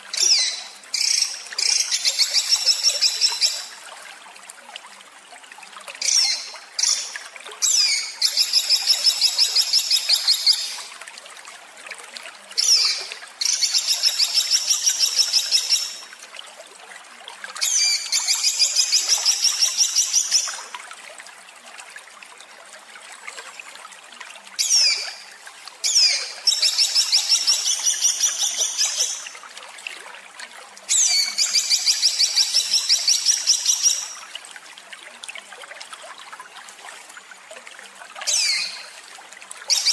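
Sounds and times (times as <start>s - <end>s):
trickle of water: 0.0s - 39.9s.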